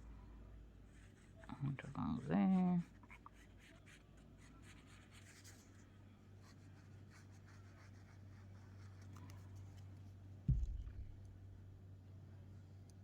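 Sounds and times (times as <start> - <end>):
dull thump on work surface: 10.5 - 11.2.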